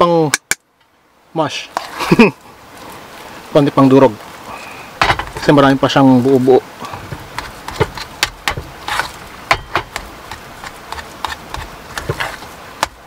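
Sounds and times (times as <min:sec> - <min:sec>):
metal spoon clinking and scraping pot: 0:07.1 - 0:12.5.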